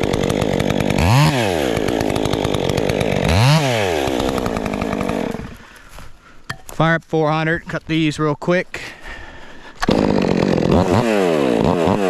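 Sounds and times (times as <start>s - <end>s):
chainsaw revving: 0.0s - 5.6s, 9.8s - 12.0s.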